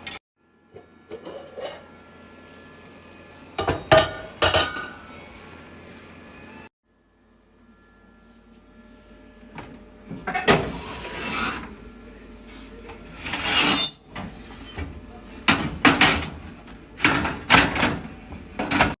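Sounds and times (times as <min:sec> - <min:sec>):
rustling scrape: 0:10.7 - 0:11.8.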